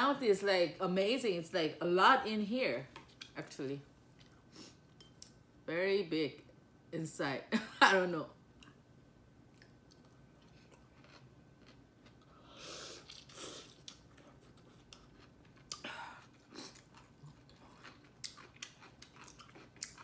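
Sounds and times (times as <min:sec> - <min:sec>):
person chewing food: 0:09.5 - 0:20.0.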